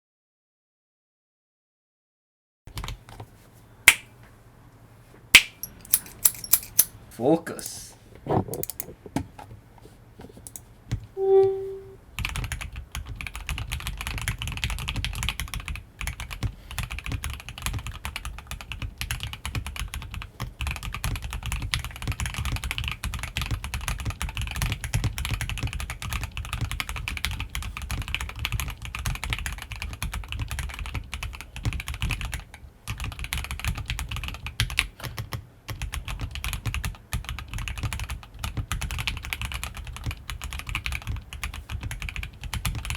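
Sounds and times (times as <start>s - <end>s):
short beep: 11.2s - 12.0s
mechanical keyboard typing: 11.2s - 42.9s.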